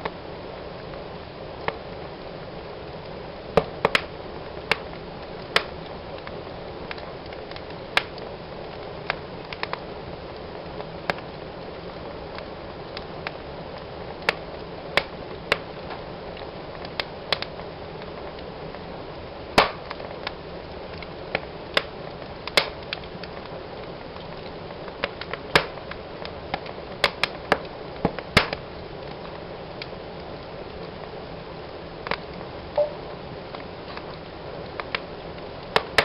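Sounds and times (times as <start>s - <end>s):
fire hissing: 0.0s - 36.0s
wood fire crackling: 0.0s - 36.0s
sharp pops of fire: 3.5s - 9.9s, 14.2s - 18.1s, 19.5s - 30.0s, 32.0s - 36.0s.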